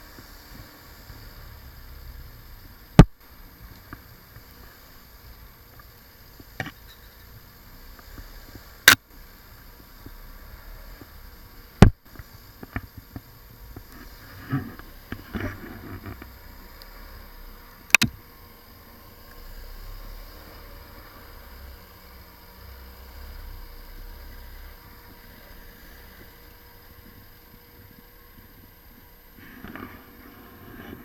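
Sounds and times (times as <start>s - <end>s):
low steady hiss: 0.0s - 31.0s
crackling and rustling: 11.8s - 17.0s, 25.1s - 31.0s.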